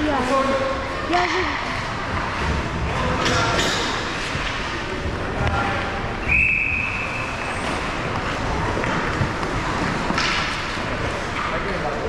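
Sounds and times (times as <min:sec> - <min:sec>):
steady background noise: 0:00.0 - 0:12.0
referee's whistle: 0:06.3 - 0:07.3.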